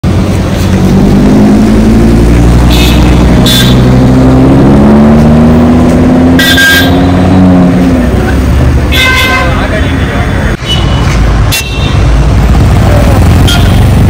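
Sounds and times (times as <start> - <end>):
car engine pulling away: 0.1 - 6.4
high car horn toots: 2.7 - 4.0, 6.3 - 7.3, 8.9 - 9.7, 13.4 - 13.9.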